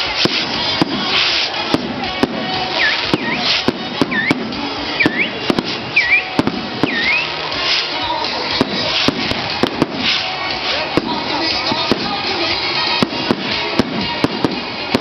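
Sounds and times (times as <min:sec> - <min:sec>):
crowd noise: 0:00.0 - 0:15.0
festival music: 0:00.0 - 0:15.0
swooping whistle: 0:02.8 - 0:04.4, 0:05.0 - 0:07.4.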